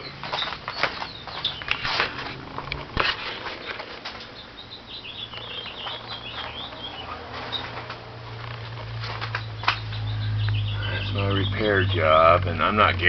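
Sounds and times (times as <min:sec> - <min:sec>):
high chirps: 0:03.5 - 0:07.8, 0:09.3 - 0:12.2.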